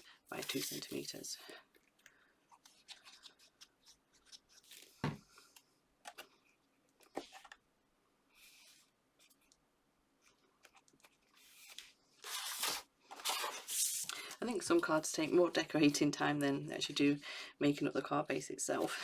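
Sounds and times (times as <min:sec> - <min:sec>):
paper rustling: 0:00.3 - 0:01.3, 0:02.5 - 0:05.1, 0:10.2 - 0:14.4.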